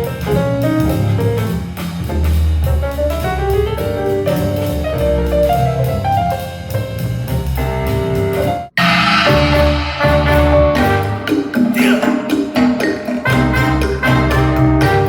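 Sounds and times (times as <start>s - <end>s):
jazz with piano bass and drums: 0.0s - 8.8s, 13.3s - 15.0s
bright music: 9.0s - 15.0s.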